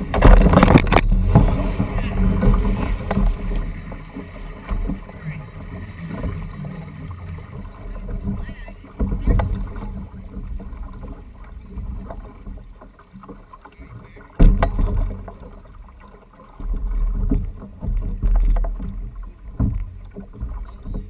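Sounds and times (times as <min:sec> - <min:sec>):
low rumbling: 0:00.0 - 0:12.8
sudden loud thump: 0:14.4 - 0:15.2.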